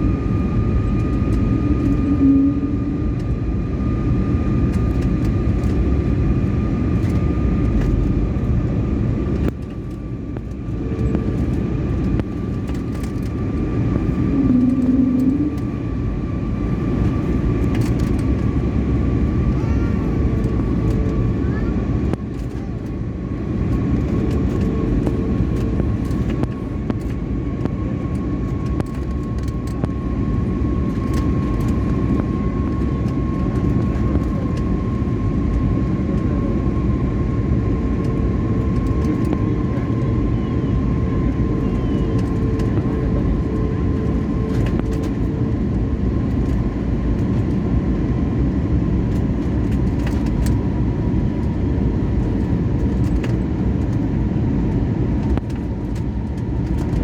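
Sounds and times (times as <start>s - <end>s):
thin whine: 0.0s - 3.5s, 10.4s - 16.8s
jet engines rumbling: 0.0s - 57.0s.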